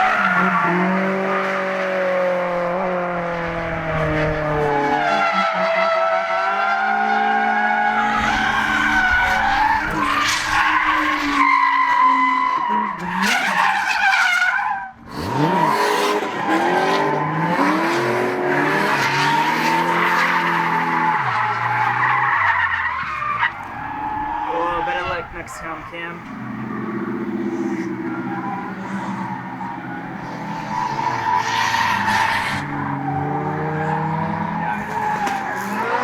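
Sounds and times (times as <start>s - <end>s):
car engine revving: 15.0s - 36.0s.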